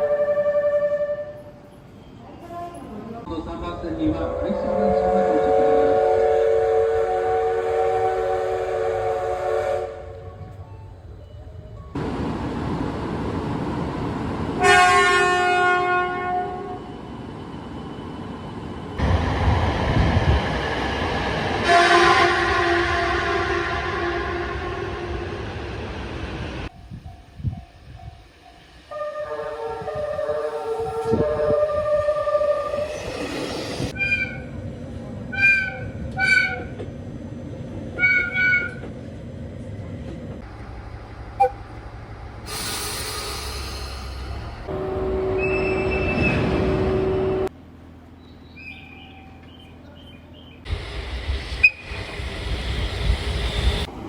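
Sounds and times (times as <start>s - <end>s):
train horn blast: 0.0s - 1.6s, 4.3s - 10.4s, 14.6s - 16.8s, 21.6s - 25.4s, 28.9s - 34.4s, 41.4s - 41.7s, 44.6s - 47.5s
train running rumble: 10.2s - 54.0s
short high-pitched train whistle toots: 45.0s - 46.5s.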